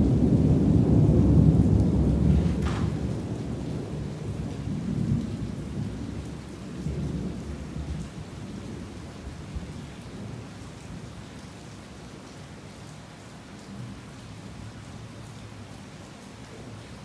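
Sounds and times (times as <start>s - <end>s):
thunder rumbling: 0.0s - 7.4s
heavy rain falling: 0.0s - 17.0s.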